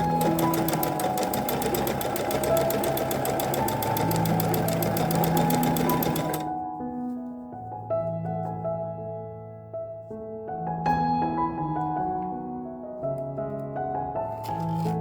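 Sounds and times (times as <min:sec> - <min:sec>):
sewing machine stitching: 0:00.0 - 0:06.5, 0:14.3 - 0:15.0.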